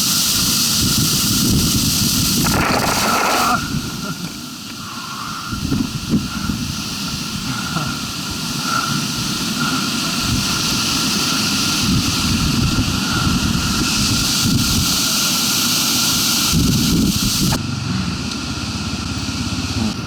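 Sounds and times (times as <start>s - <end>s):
wind rushing over microphone: 0.3s - 4.2s, 5.3s - 15.1s, 16.5s - 17.6s
motorcycle engine running unevenly: 17.5s - 20.0s.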